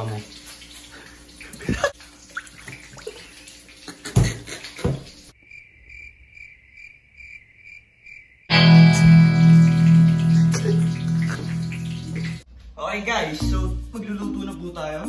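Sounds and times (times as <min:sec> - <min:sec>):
cricket chirping sound effect: 0:05.4 - 0:12.4
music: 0:08.5 - 0:15.0.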